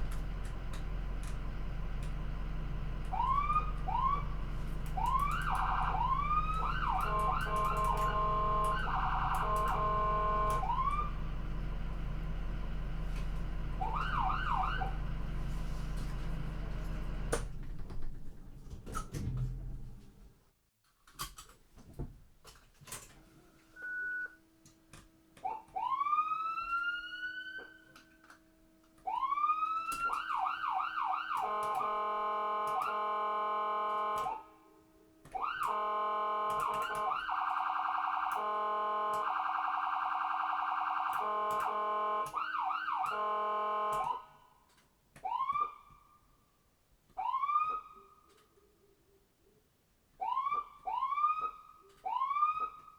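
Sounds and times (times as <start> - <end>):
electronic siren whooping and warbling: 3.1 - 4.4, 5.0 - 11.2, 13.8 - 15.0, 25.5 - 27.9, 29.1 - 34.4, 35.4 - 44.3, 50.2 - 52.9.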